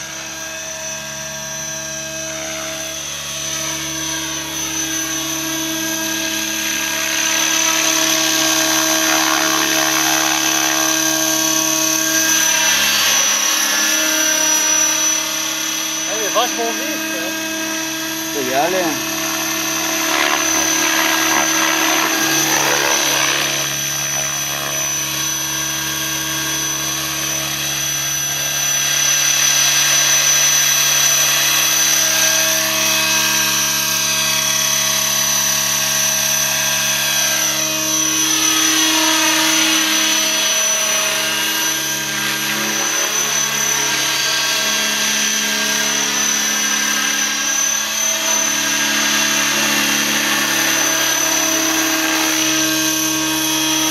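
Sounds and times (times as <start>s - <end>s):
model helicopter rotor hum: 0.0s - 53.9s
high drivetrain whine: 3.8s - 27.4s.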